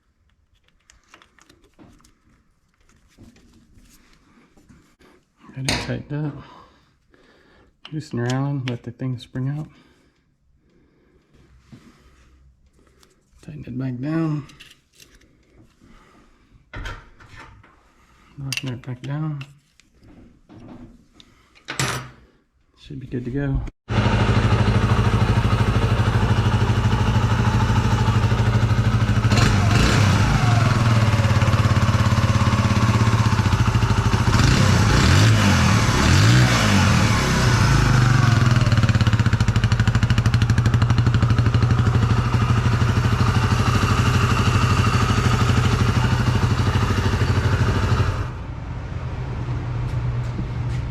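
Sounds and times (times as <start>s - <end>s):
motorcycle engine idling and revving: 23.9s - 50.9s.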